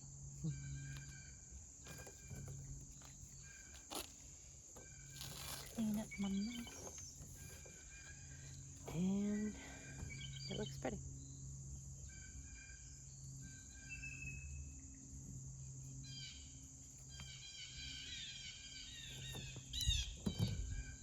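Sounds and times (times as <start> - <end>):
birds chirping and whistling: 4.8 - 10.9, 16.1 - 21.0.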